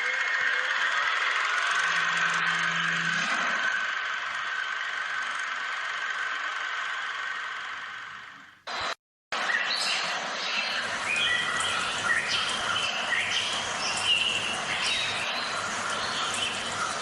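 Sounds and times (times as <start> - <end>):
birds chirping: 9.4 - 17.0.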